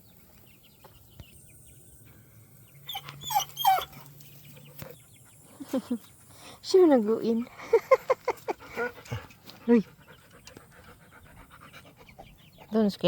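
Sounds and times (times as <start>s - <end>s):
chicks peeping: 0.0s - 6.6s, 7.3s - 13.0s
dog whining: 2.9s - 4.1s.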